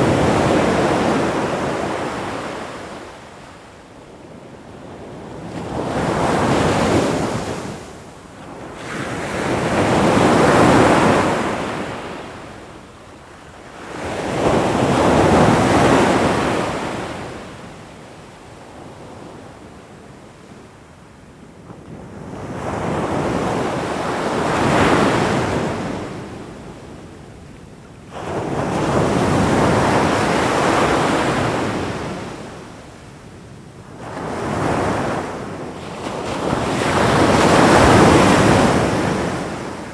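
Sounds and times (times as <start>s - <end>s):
ocean waves breaking: 36.1s - 39.9s.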